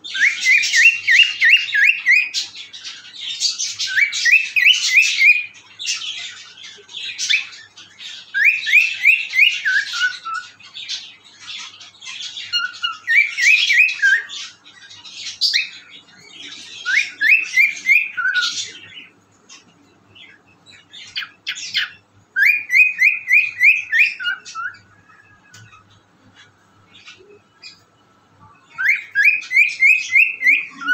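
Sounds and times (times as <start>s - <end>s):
cockatiel whistling: 0.1s - 5.5s, 7.2s - 10.6s, 12.4s - 14.5s, 16.4s - 19.0s, 21.1s - 25.8s, 28.7s - 30.9s.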